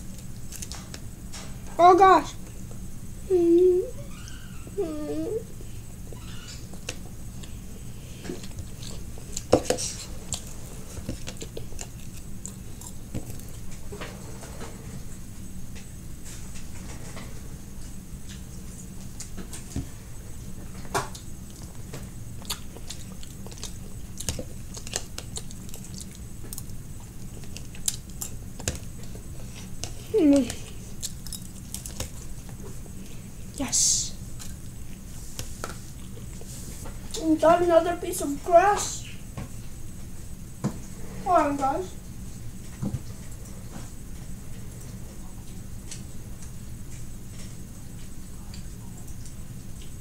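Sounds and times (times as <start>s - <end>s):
steady low hum: 0.0s - 50.0s
person chewing: 8.3s - 13.7s, 22.4s - 33.3s.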